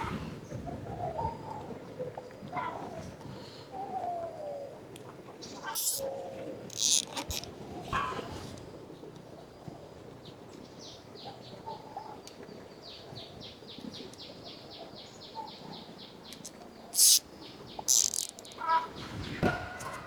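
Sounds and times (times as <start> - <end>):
loud rasping bursts: 5.8 - 6.0, 6.7 - 7.5, 16.4 - 17.2, 17.9 - 18.6.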